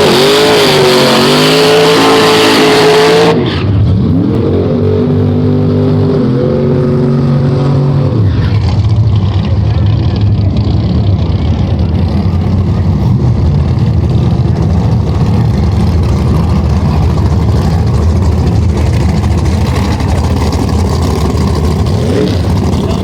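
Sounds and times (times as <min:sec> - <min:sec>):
car engine idling: 0:06.7 - 0:23.0.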